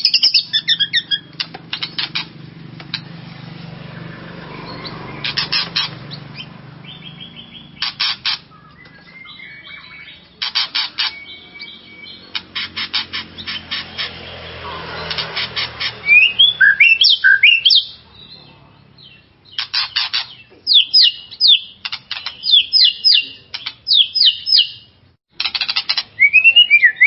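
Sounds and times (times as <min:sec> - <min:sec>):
bird clicking chatter: 0:00.0 - 0:03.1, 0:05.2 - 0:06.5, 0:07.7 - 0:09.0, 0:12.3 - 0:14.1, 0:15.0 - 0:16.0, 0:19.6 - 0:24.6, 0:25.3 - 0:26.2
bird whistled notes: 0:04.7 - 0:10.2, 0:16.0 - 0:18.0, 0:20.7 - 0:24.9, 0:26.2 - 0:27.0.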